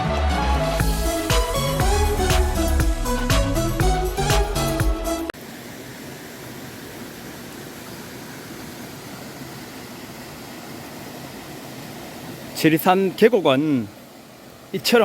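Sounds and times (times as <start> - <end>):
stream rushing: 5.4 - 15.0.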